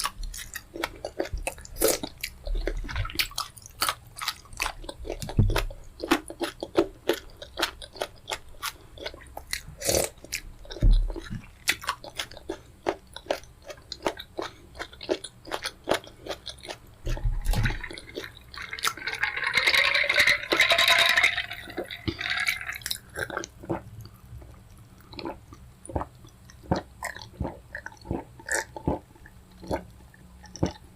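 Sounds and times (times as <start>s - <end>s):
wet chewing and lip-smacking: 0.0s - 19.9s, 21.8s - 30.9s.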